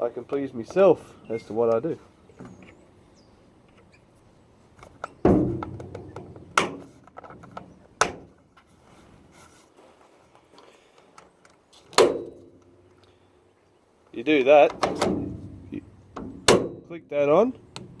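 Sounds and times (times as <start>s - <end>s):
sharp knocks and clunks: 4.8s - 8.4s, 11.9s - 12.8s, 14.6s - 17.0s, 17.6s - 18.0s.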